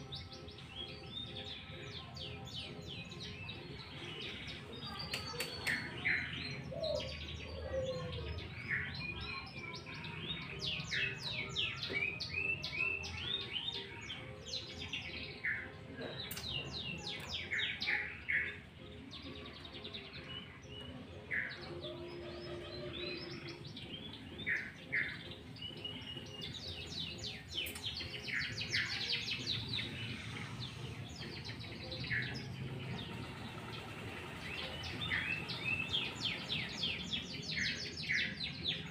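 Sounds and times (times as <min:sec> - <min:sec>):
bulbul calling and singing: 0:00.0 - 0:38.9.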